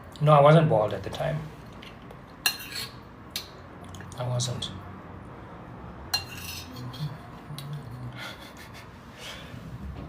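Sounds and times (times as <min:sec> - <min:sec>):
cutlery clinking on a plate: 0:02.4 - 0:03.5, 0:06.2 - 0:07.1
cutlery scraping a plate: 0:02.4 - 0:03.5, 0:06.1 - 0:07.2.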